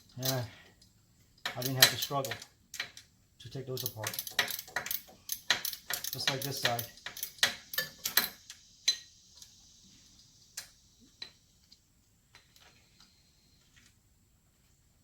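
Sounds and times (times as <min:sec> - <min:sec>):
metallic clicks from hand tools: 0:00.1 - 0:00.4, 0:01.4 - 0:03.1, 0:03.7 - 0:08.6.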